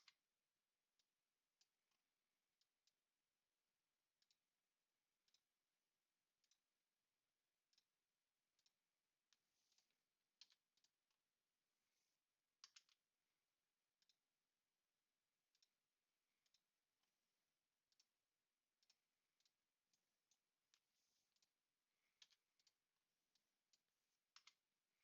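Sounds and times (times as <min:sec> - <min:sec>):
faint computer mouse clicks: 0:00.0 - 0:00.2, 0:08.6 - 0:11.0, 0:12.6 - 0:13.0, 0:18.8 - 0:20.0, 0:20.7 - 0:24.7.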